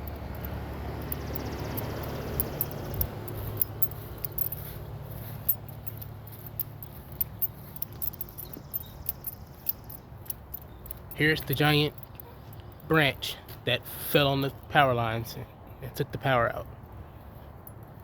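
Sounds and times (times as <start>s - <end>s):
keys jingling: 0.0s - 13.2s.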